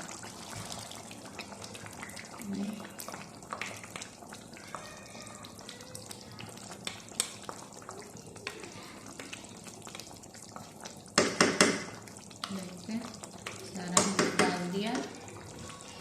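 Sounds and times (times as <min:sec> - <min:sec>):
chicken frying in a pan: 0:00.0 - 0:16.0
spoon knocking on pan: 0:11.2 - 0:12.0, 0:13.8 - 0:15.1.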